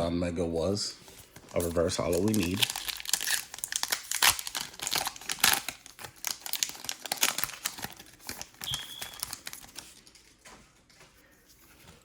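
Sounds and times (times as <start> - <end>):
foil wrapper crinkling: 1.0 - 10.4
trading cards handled: 1.0 - 12.0.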